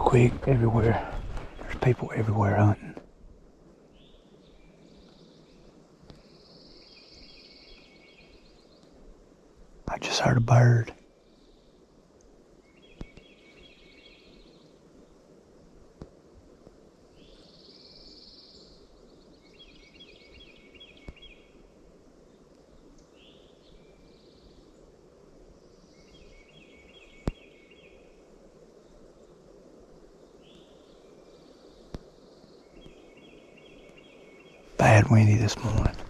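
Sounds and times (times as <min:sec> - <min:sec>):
songbird singing: 0:00.0 - 0:03.1, 0:03.7 - 0:09.2, 0:09.9 - 0:15.4, 0:17.1 - 0:36.0
wind noise: 0:00.0 - 0:03.3, 0:34.7 - 0:36.0.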